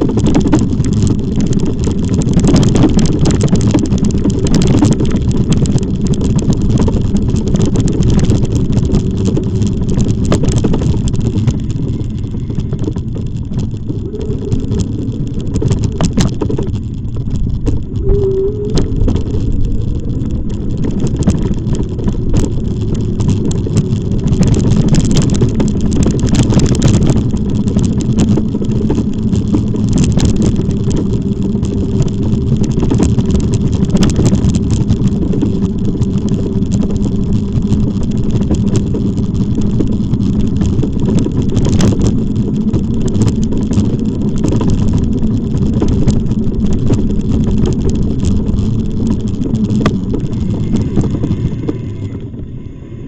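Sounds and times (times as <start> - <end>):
scattered clicks: 0.0 - 52.3
faint steady hum: 0.0 - 53.0
wind noise on camera: 0.0 - 53.0.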